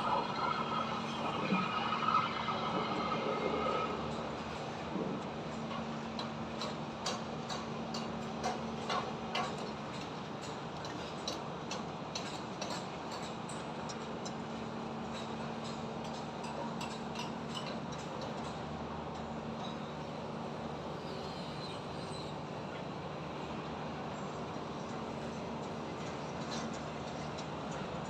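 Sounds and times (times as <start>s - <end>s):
highway traffic: 0.0s - 4.4s
construction taps and knocks: 6.2s - 14.4s.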